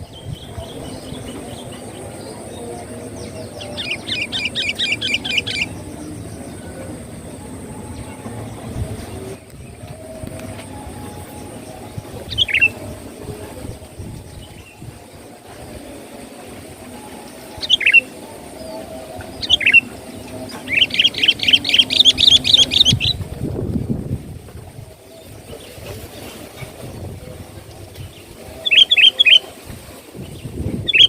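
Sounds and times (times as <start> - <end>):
bird calling: 0.0 - 23.4, 28.2 - 29.6
steady low background noise: 0.0 - 31.0.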